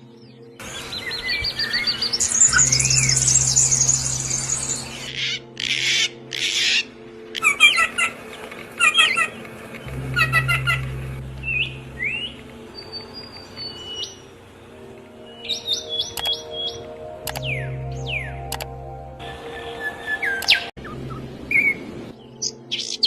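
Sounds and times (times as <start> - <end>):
songbirds chirping and whistling: 0.0 - 23.0
low steady hum: 9.4 - 15.2, 20.8 - 22.4.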